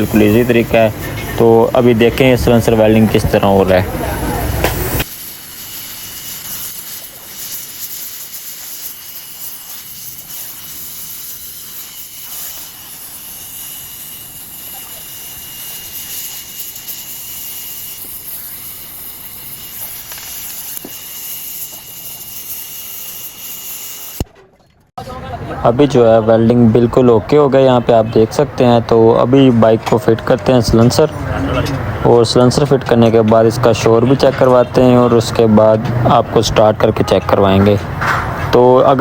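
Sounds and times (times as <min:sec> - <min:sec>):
welding torch flame hissing: 0:00.0 - 0:24.2.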